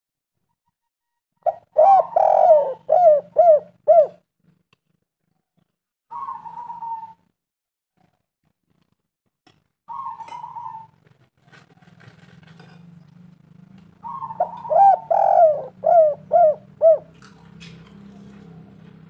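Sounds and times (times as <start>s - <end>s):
dove cooing: 1.4s - 4.3s, 6.1s - 7.3s, 9.9s - 12.3s, 13.9s - 19.0s.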